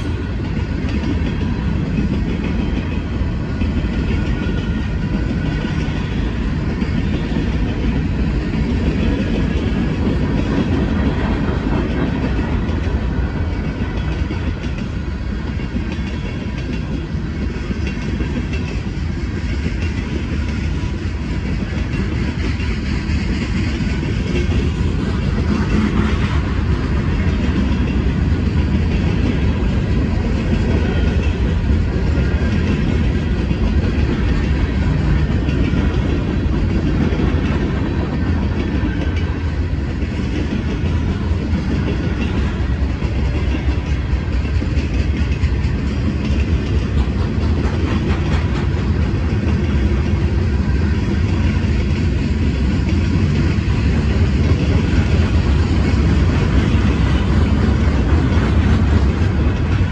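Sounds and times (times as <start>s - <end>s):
clickety-clack over rail joints: 0.0s - 59.9s
freight train wheels rumbling: 0.0s - 59.9s.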